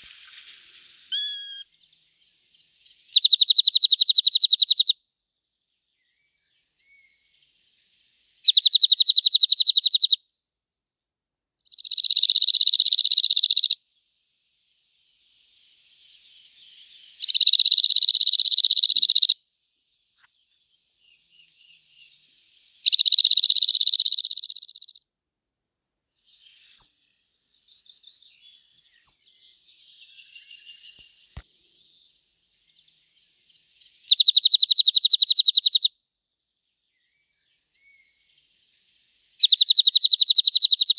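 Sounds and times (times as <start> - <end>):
faint bird calls: 0.0 - 1.8, 8.4 - 10.2, 11.6 - 13.8, 16.0 - 19.4, 20.2 - 25.0, 32.7 - 35.9, 39.3 - 40.9
songbird dry trill: 0.0 - 5.0, 5.9 - 10.2, 11.7 - 25.0, 26.2 - 35.9, 36.6 - 40.9
short high chirps: 1.1 - 1.6.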